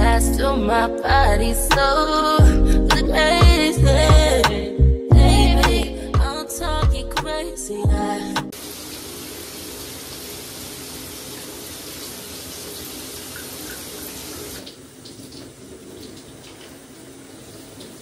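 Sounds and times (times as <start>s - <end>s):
water running: 8.5s - 18.0s.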